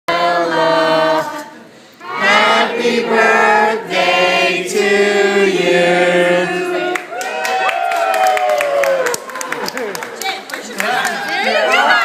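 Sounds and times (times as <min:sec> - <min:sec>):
choir singing long notes: 0:00.1 - 0:07.1.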